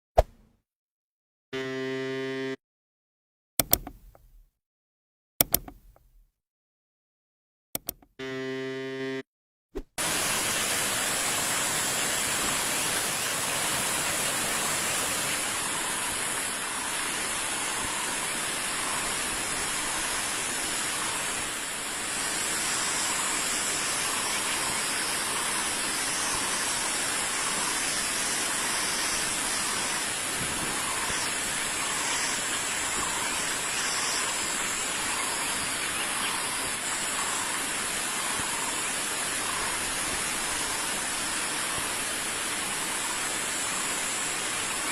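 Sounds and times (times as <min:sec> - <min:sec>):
loud steady hiss: 0:10.0 - 0:44.9.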